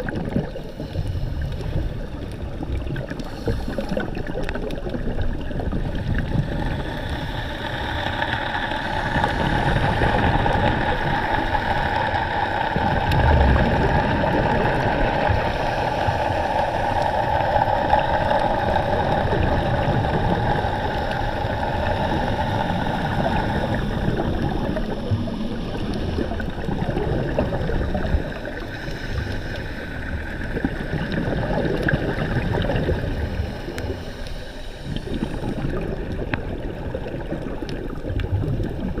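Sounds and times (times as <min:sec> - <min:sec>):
water noise: 0:00.0 - 0:39.0.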